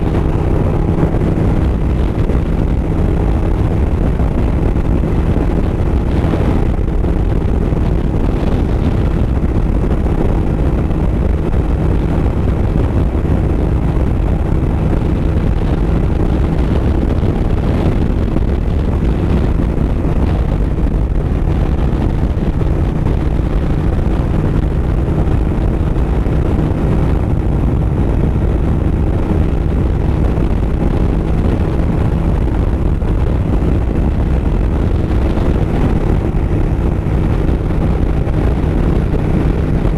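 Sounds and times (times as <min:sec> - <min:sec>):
motorcycle engine cruising: 0:00.0 - 0:39.9
wind rushing over microphone: 0:00.0 - 0:39.9.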